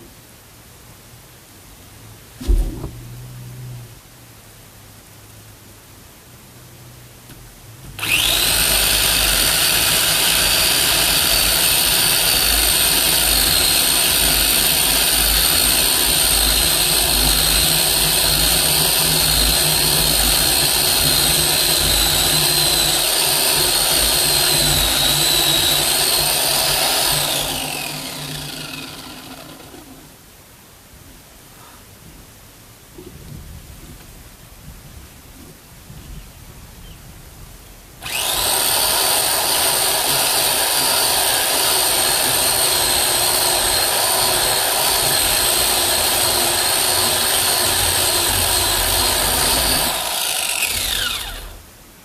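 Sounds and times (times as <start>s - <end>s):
electric chainsaw cutting wood: 8.0s - 30.1s, 38.0s - 51.6s.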